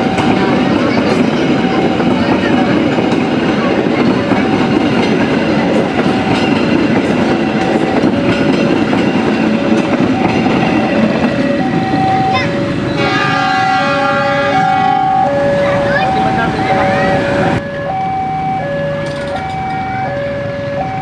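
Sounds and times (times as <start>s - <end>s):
chord of steady tones: 0.0s - 21.0s
train wheels rattling on rails: 0.0s - 21.0s
two-note alternating tone: 9.7s - 21.0s.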